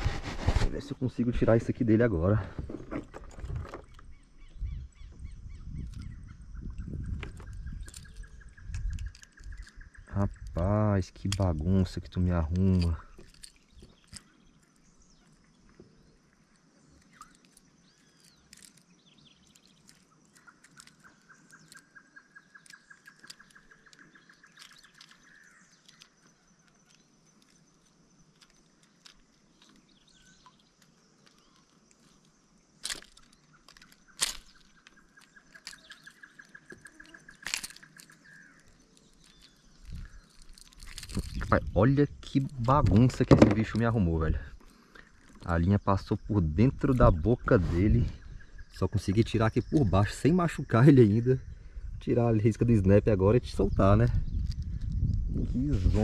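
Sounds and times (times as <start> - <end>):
fishing tackle clicks: 7.2 - 14.7, 17.0 - 29.8, 32.8 - 43.9
bird trilling: 33.3 - 41.4.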